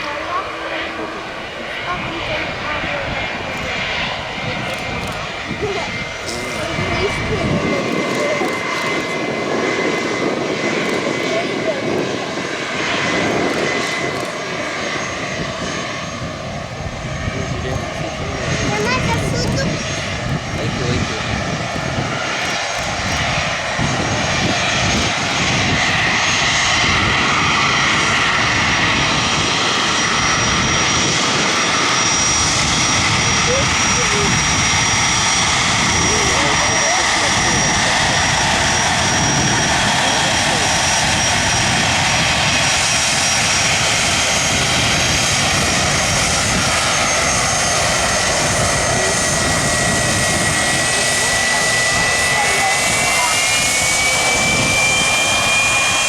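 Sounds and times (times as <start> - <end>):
aircraft engines running: 0.0 - 56.0.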